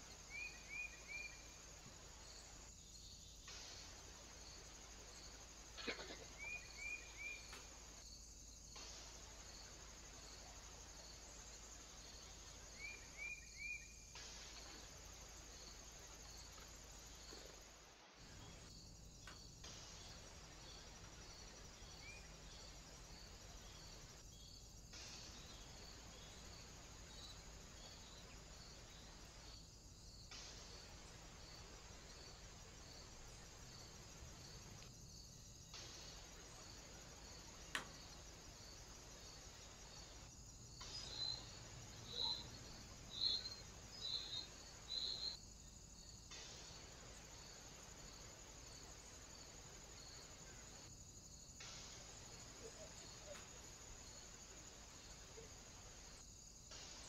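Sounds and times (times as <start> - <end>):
microphone hiss: 0.0 - 57.0
sharp click: 37.7 - 37.9.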